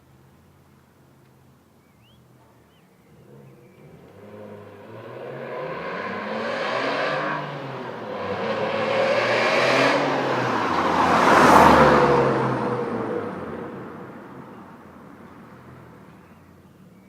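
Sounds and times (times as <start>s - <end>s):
car engine accelerating past: 3.1s - 14.6s.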